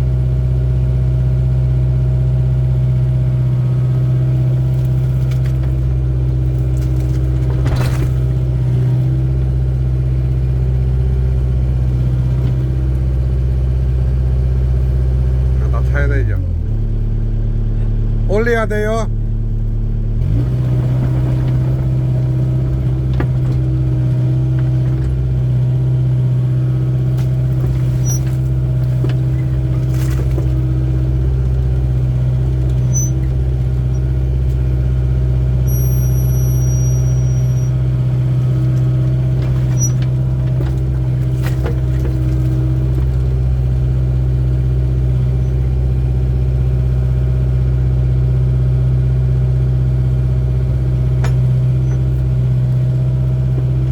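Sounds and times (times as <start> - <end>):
excavator diesel engine: 0.0 - 53.9
high squeak: 32.8 - 33.2, 35.7 - 37.8.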